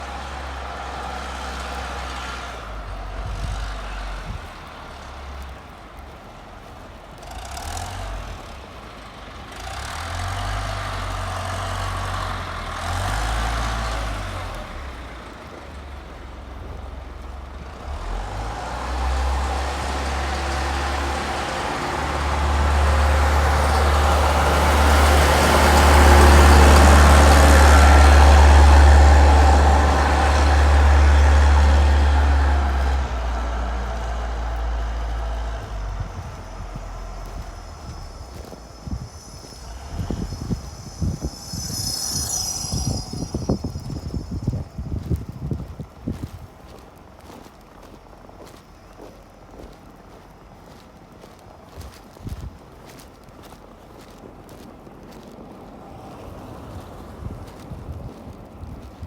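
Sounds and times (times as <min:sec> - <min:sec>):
outdoor street noise: 0:00.0 - 0:59.0
wind buffeting microphone: 0:02.7 - 0:07.2, 0:18.0 - 0:48.6, 0:50.6 - 0:59.0.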